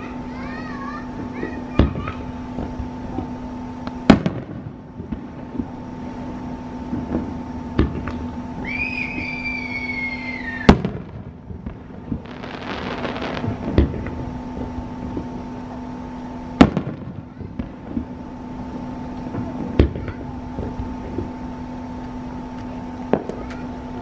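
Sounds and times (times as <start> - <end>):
firework bangs: 0.0 - 24.0
firework crackling: 0.0 - 24.0
firework whistle: 8.1 - 11.3, 12.2 - 14.2.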